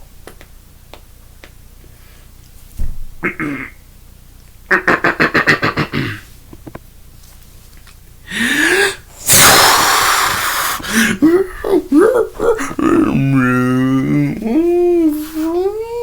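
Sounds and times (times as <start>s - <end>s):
loud breathy hiss: 8.2s - 11.8s.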